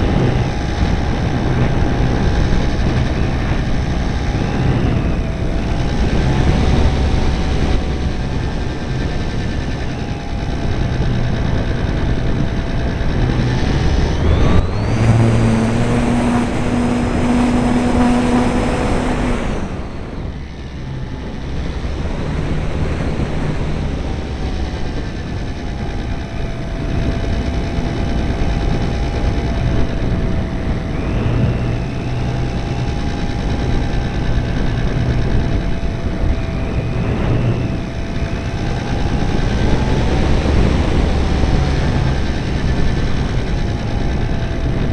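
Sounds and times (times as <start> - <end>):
model airplane motor and propeller: 0.0 - 44.9
wind noise: 0.0 - 44.9.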